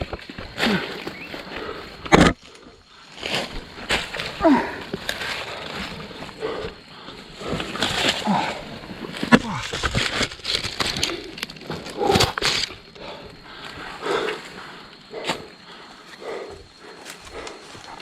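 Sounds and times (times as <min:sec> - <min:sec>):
person grunting: 0:04.4 - 0:04.9
twigs snapping: 0:07.4 - 0:13.8.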